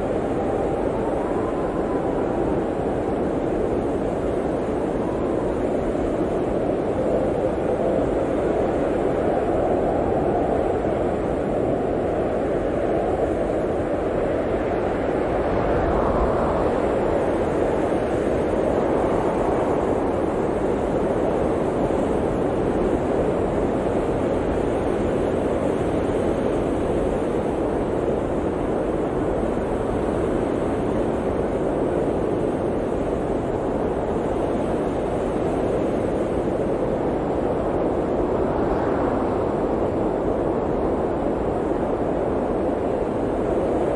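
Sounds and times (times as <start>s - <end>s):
blizzard wind rushing: 0.0s - 43.9s.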